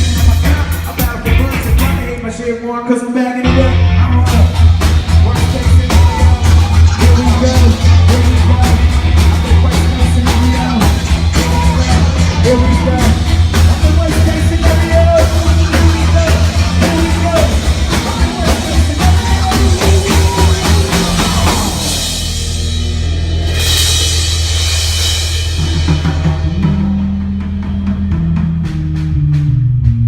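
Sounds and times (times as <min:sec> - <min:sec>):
live rock band playing: 0:00.0 - 0:02.4, 0:03.4 - 0:30.0
sustained bass tone: 0:00.0 - 0:02.5, 0:03.4 - 0:30.0
person singing through pa: 0:00.0 - 0:22.7.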